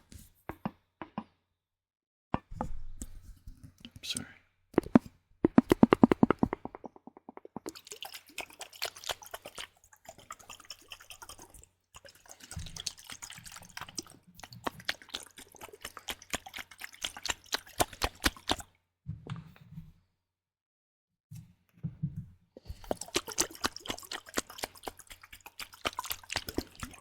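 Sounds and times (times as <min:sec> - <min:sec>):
wet liquid clicks and drips: 0:04.8 - 0:18.8, 0:22.6 - 0:27.0.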